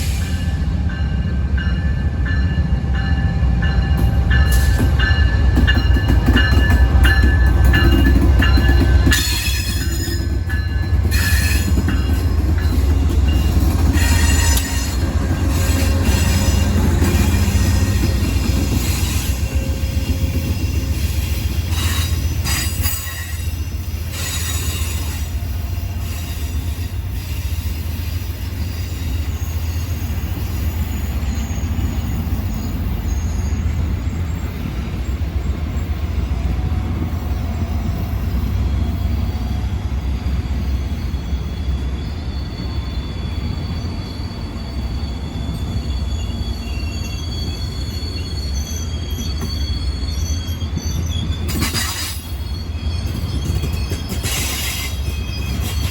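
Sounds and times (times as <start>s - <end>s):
train rumbling past: 0.0s - 55.9s
wheels squealing: 40.4s - 55.9s.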